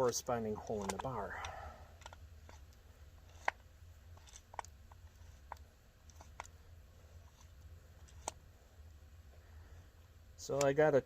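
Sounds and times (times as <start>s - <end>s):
chainsaw parts clicking and tapping: 0.0s - 2.7s, 10.5s - 10.8s.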